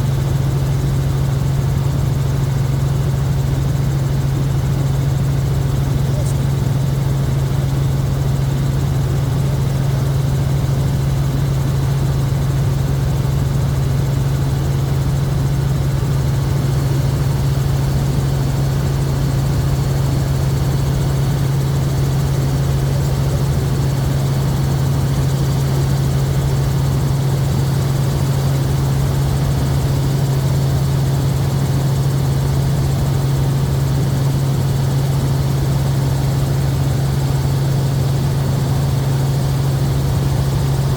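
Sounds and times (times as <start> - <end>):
helicopter drone: 0.0 - 40.9.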